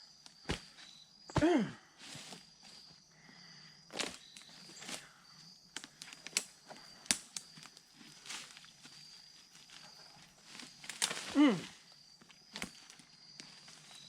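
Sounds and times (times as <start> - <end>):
sticks cracking and snapping: 5.7 - 7.7, 10.8 - 11.4.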